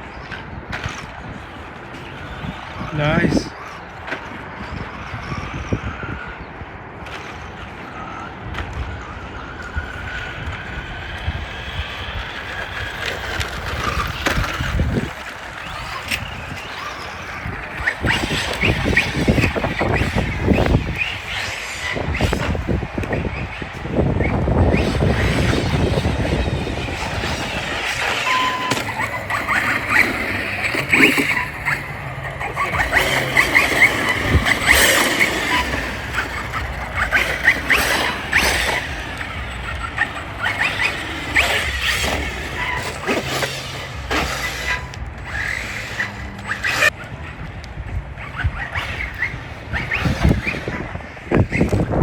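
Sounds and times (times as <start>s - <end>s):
model cars running: 0.0s - 52.0s
high squeals: 9.8s - 47.0s.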